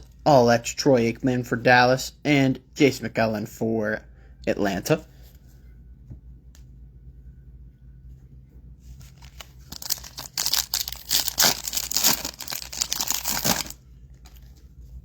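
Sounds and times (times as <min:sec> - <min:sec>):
foil wrapper tearing and crinkling: 0:09.2 - 0:13.8.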